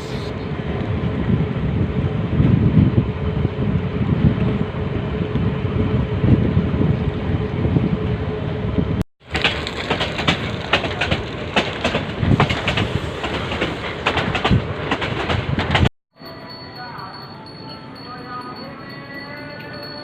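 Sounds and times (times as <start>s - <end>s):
train carriage rumble: 0.0s - 15.9s.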